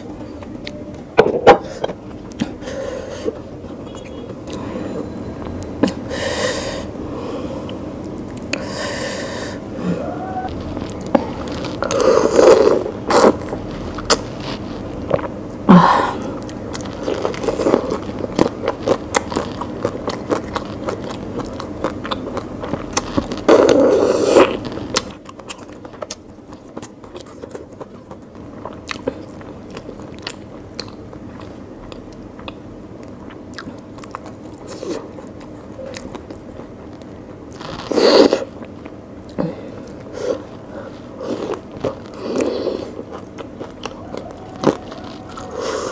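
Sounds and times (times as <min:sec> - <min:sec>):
person chewing food: 0:00.0 - 0:08.8, 0:09.6 - 0:45.9.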